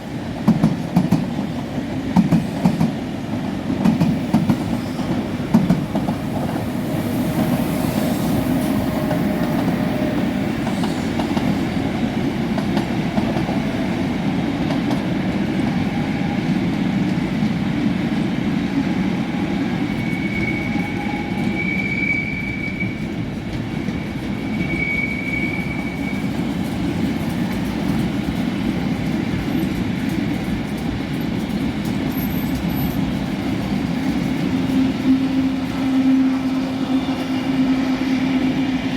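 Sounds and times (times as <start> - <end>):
train rumbling on rails: 0.0 - 38.9
high wheel squeal: 19.9 - 23.2, 24.3 - 26.5.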